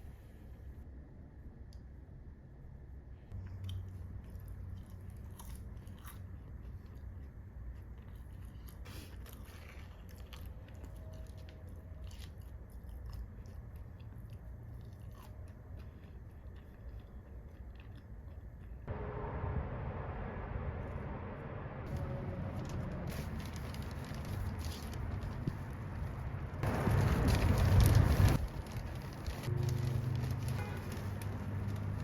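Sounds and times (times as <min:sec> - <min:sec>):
steady low hum: 0:10.5 - 0:30.2.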